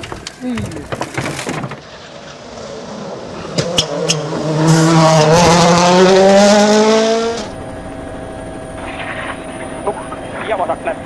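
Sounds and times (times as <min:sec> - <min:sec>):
rally car engine accelerating: 0:02.0 - 0:07.9.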